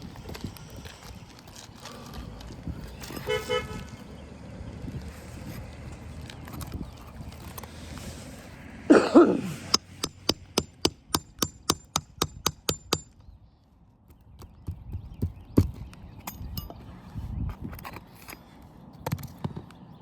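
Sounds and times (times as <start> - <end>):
hammer striking steel: 9.7 - 13.2.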